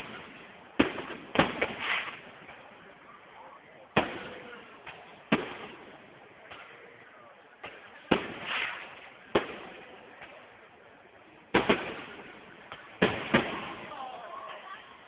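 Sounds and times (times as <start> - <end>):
fireworks shells bursting: 0.0 - 2.8, 7.6 - 10.4.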